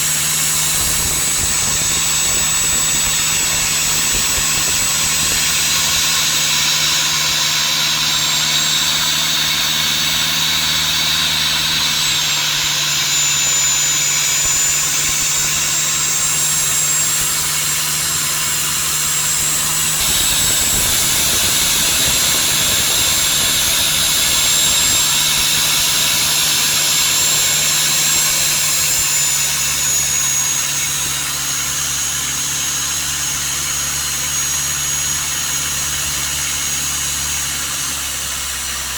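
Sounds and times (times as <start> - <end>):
high whine: 0.0 - 10.6, 11.4 - 31.1
boat engine running: 0.0 - 31.8.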